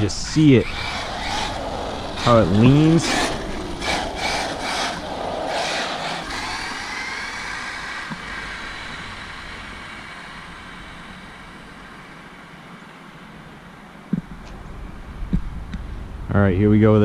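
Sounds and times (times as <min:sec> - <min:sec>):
tyre noise: 0:00.0 - 0:12.1
electric motor whining: 0:00.0 - 0:12.6.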